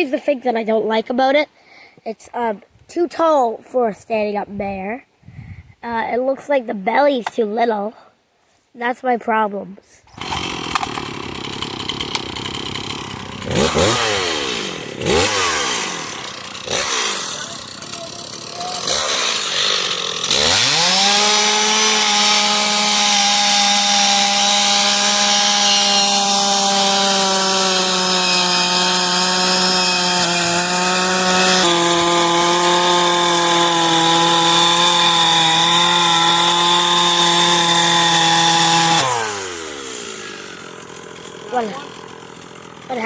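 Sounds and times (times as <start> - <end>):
chainsaw cutting wood: 10.1 - 43.0.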